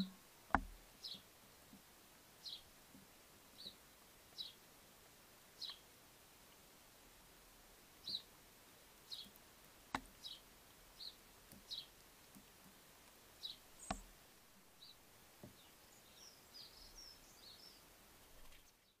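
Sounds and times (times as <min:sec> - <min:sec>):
garden birds chirping: 0:00.0 - 0:19.0
sharp clicks: 0:13.8 - 0:14.2.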